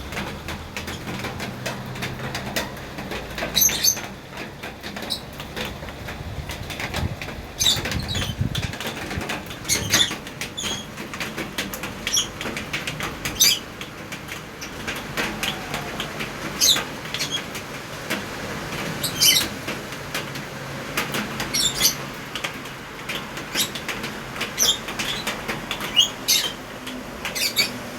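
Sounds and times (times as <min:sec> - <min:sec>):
rain pattering on leaves: 0:00.0 - 0:27.9
bird chirps: 0:27.3 - 0:27.8.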